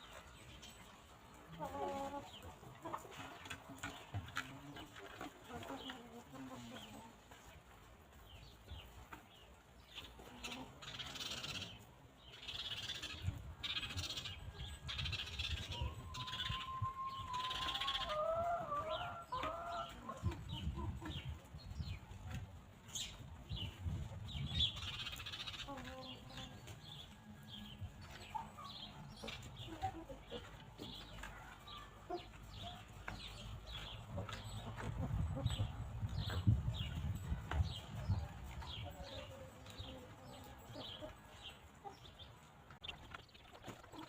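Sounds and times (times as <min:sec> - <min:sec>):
hens clucking: 0:00.0 - 0:44.0
hens pecking and scratching: 0:00.0 - 0:44.0
wind on microphone: 0:20.2 - 0:25.0, 0:34.8 - 0:39.0.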